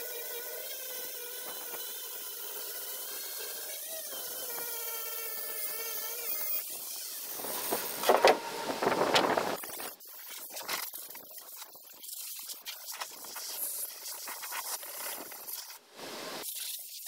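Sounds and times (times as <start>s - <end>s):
power tool whining: 0.0s - 10.0s.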